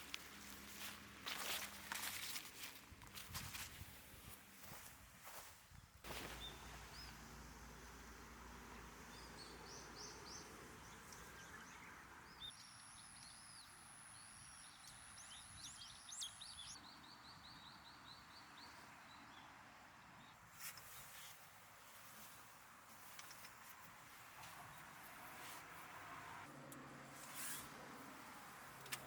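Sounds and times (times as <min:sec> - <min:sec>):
birds chirping: 0:06.1 - 0:19.5.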